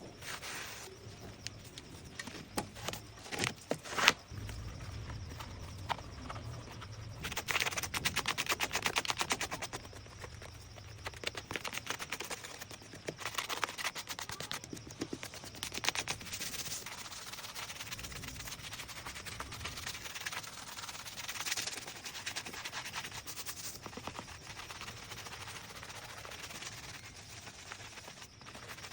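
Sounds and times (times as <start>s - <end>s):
brush strokes on leather shoe: 0.1s - 1.4s.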